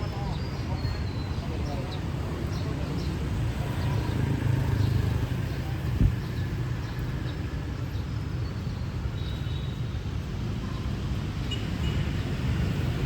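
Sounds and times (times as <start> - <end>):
passing vehicle engines rumbling: 0.0 - 13.0.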